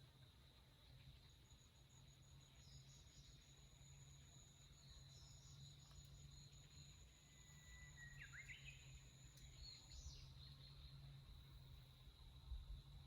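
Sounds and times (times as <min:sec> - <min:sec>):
insects trilling: 0:01.2 - 0:12.1.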